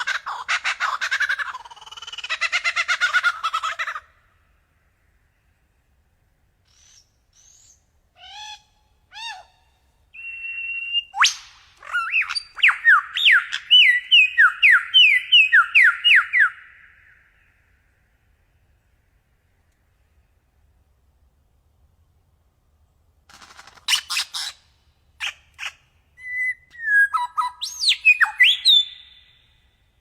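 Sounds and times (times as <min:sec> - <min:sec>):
faint bird chirps: 0:04.0 - 0:21.1, 0:23.4 - 0:30.0
songbird singing: 0:04.1 - 0:21.1, 0:23.9 - 0:30.0
rising whistled bird notes: 0:10.2 - 0:17.6, 0:26.2 - 0:29.6.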